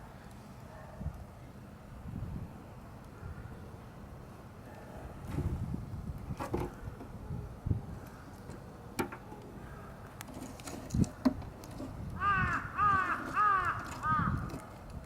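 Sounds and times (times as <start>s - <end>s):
crow cawing: 12.2s - 14.5s.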